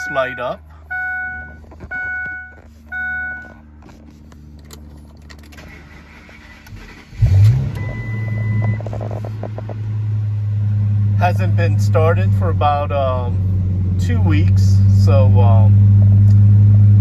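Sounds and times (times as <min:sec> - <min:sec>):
dashboard warning chime: 0:00.0 - 0:03.6, 0:07.6 - 0:08.9
car engine starting and idling: 0:00.0 - 0:17.0.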